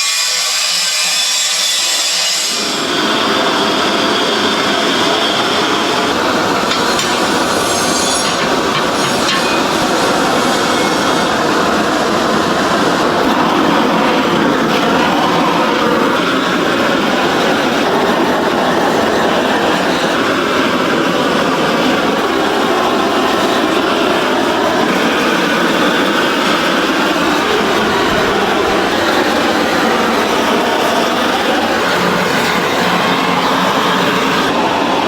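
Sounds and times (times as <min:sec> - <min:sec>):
factory machinery rumbling: 0:02.5 - 0:35.0.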